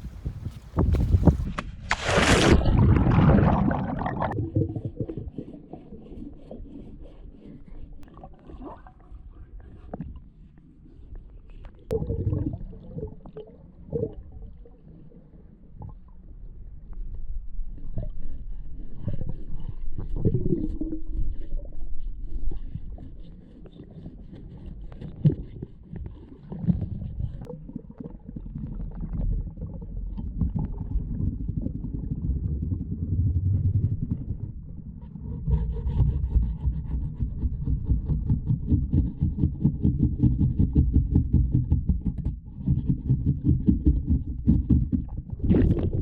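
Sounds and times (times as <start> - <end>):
water noise: 0.0 - 10.4, 11.8 - 16.8, 44.9 - 46.0
muffled underwater scrubbing: 0.0 - 46.0.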